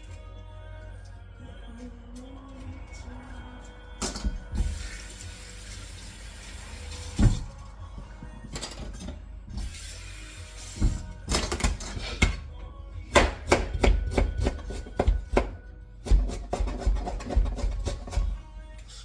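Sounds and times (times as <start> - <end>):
background music: 0.0 - 19.0
knife chopping on cutting board: 13.1 - 18.4.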